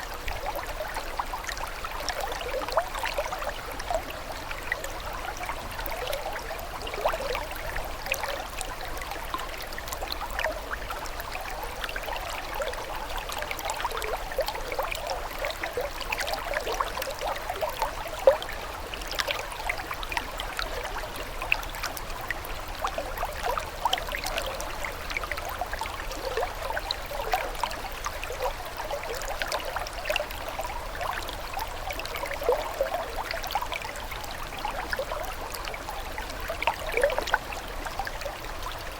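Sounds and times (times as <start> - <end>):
small splashes and drips: 0.0 - 38.9
water trickling: 0.0 - 38.9.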